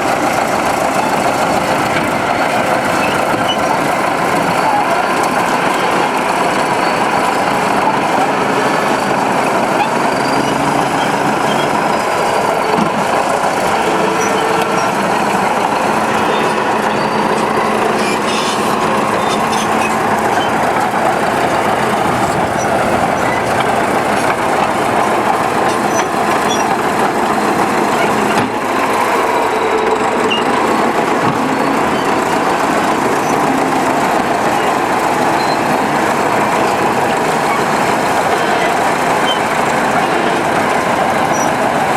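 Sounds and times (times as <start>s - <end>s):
heavy diesel machinery running: 0.0s - 41.9s.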